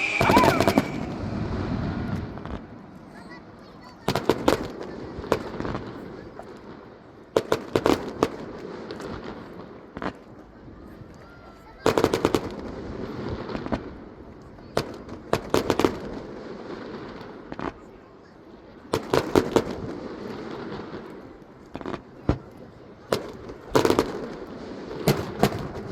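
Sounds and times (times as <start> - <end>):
rumbling echo: 0.0 - 3.0
fireworks cracks and bangs: 0.0 - 10.6, 11.6 - 18.0, 18.7 - 25.9.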